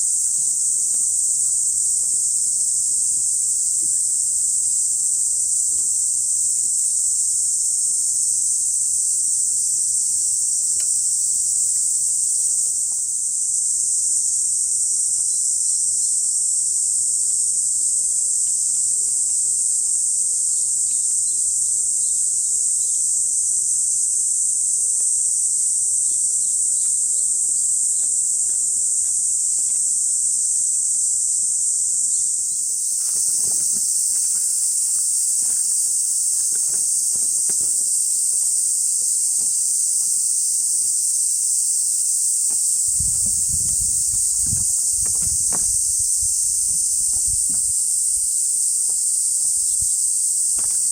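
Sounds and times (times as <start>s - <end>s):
insects droning: 0.0s - 50.9s
faint rustles: 32.8s - 40.1s.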